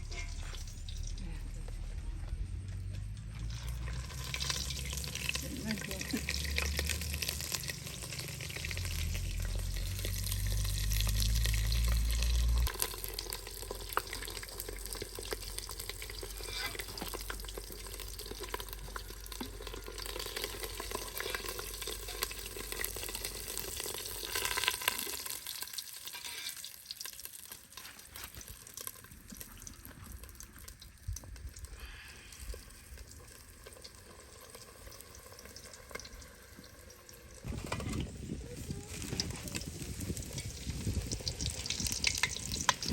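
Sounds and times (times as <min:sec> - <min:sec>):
low rumble: 0:00.0 - 0:12.8
food sizzling in hot oil: 0:03.5 - 0:31.0, 0:31.6 - 0:37.5, 0:38.2 - 0:42.9.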